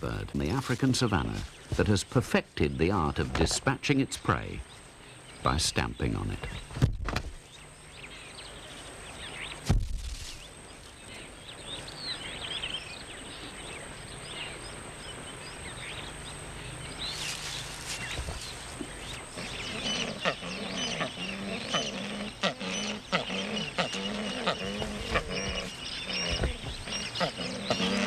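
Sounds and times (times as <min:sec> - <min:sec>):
sharp thump: 0:09.6 - 0:10.1.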